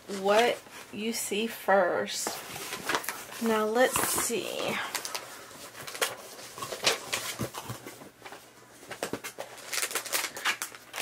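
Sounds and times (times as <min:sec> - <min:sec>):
plastic packets crinkling: 0:02.6 - 0:11.0.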